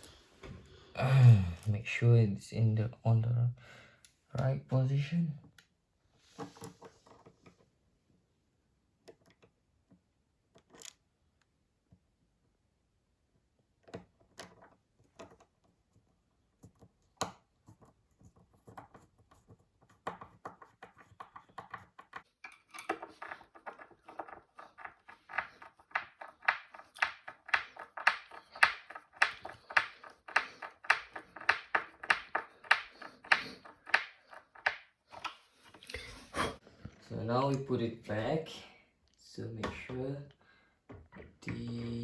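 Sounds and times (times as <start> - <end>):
screwdriver rasping turns: 21.0 - 35.4.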